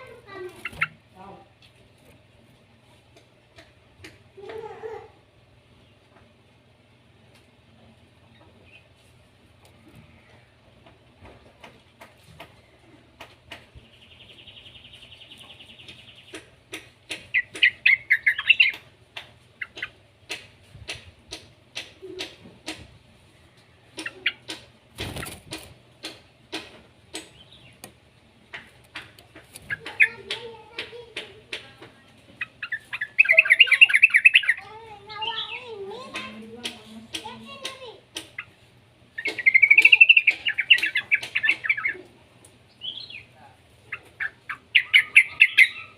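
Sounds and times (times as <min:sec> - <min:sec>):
bulbul chattering calls: 0:14.3 - 0:18.8, 0:32.4 - 0:35.6, 0:43.9 - 0:45.9.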